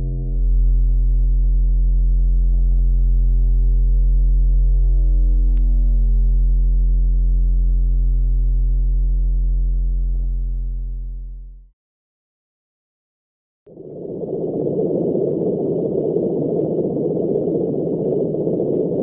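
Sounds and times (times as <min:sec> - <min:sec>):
deep electronic drone: 0:00.0 - 0:11.7.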